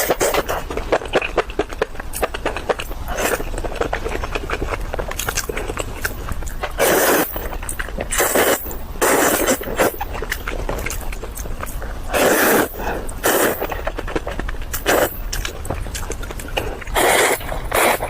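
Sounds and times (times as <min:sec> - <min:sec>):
wet chewing and mouth clicks: 0:00.0 - 0:18.0
loud slurps: 0:06.7 - 0:11.0, 0:12.1 - 0:15.5, 0:16.5 - 0:18.0.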